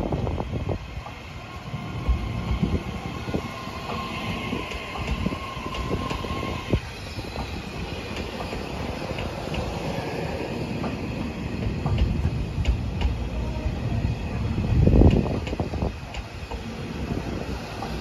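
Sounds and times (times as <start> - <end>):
train wheels knocking over rail joints: 10.7 - 13.2.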